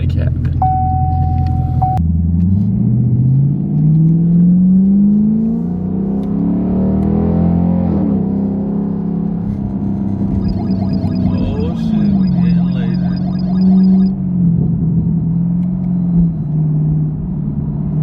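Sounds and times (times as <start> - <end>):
car exhaust from inside cabin: 0.4 - 2.0.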